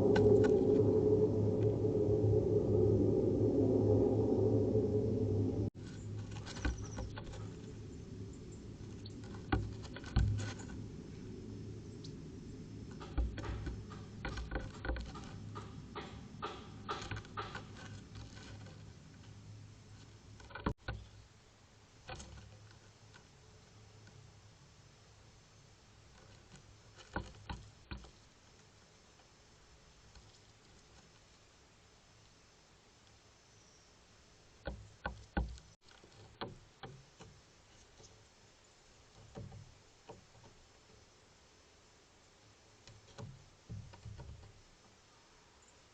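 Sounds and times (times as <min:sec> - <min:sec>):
steady low hum: 0:00.0 - 0:22.0
animals pecking on bird feeder: 0:05.8 - 0:21.2, 0:22.0 - 0:24.3, 0:25.9 - 0:31.4, 0:34.6 - 0:38.3.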